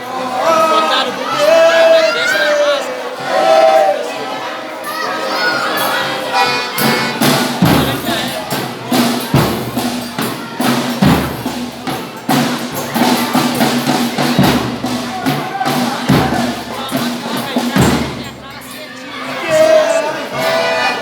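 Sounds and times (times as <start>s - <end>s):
pitched instruments or voices: 0.0s - 21.0s
jingling tambourine: 3.0s - 21.0s
drum strokes: 4.8s - 21.0s.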